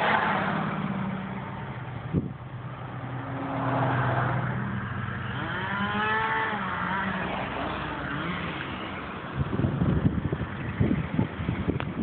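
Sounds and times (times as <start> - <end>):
rising tone: 0.0 - 9.1
car engine and road noise: 0.0 - 12.0.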